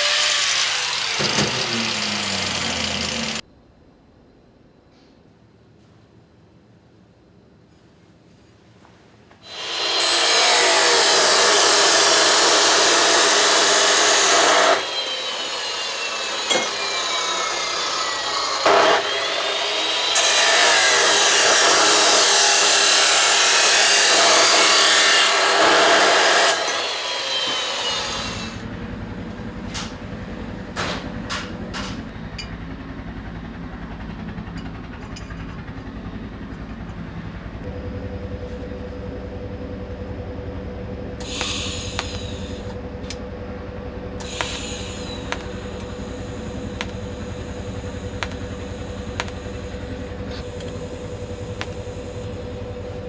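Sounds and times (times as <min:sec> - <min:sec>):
power tool working metal: 0:00.0 - 0:03.4, 0:09.4 - 0:28.6, 0:41.2 - 0:42.8, 0:44.2 - 0:53.0
sharp clicks: 0:46.7 - 0:52.5.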